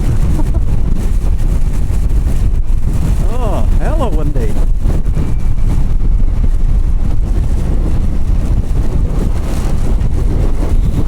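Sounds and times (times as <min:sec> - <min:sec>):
motorcycle engine rumbling: 0:00.0 - 0:07.3
wind buffeting the microphone: 0:00.0 - 0:11.0.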